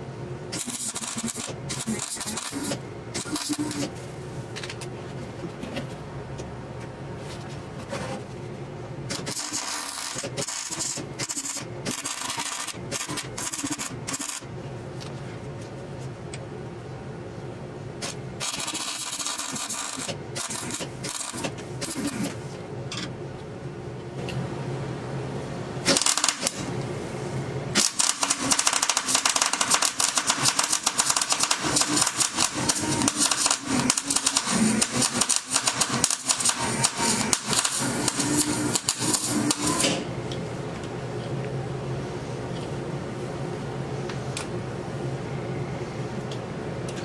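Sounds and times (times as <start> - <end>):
rapid mechanical clattering: 27.8 - 39.8.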